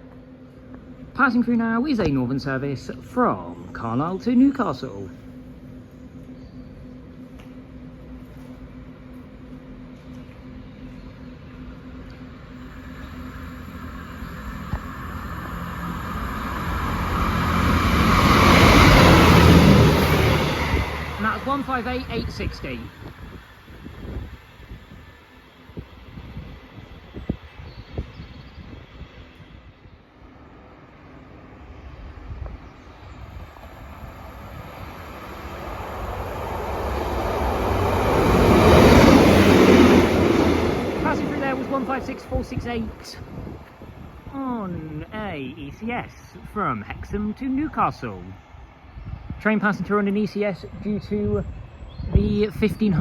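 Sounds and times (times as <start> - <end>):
diesel train passing: 0.0 - 53.0
thin high steady tone: 3.0 - 23.7.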